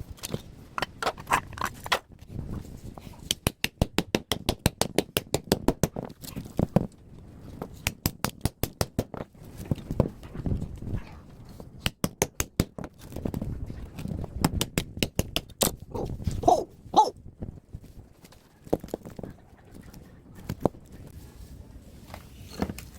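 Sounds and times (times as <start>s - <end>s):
dog barking: 15.9s - 17.1s.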